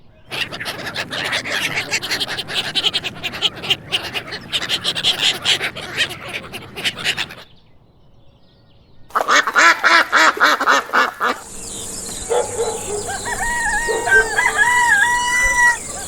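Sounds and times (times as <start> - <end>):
thin high whistled calls: 0.3 - 7.4, 10.9 - 16.0
ducks quacking: 0.3 - 7.5, 9.1 - 16.0
steady hiss: 10.9 - 16.0.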